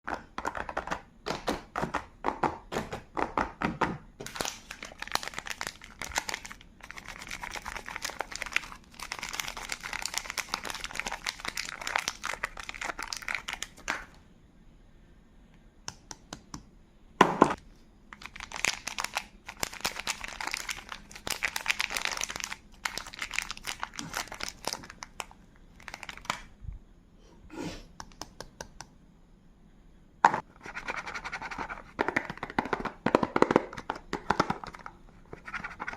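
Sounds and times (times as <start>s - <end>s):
wrappers crinkling and tearing: 4.3s - 13.8s, 18.2s - 26.5s.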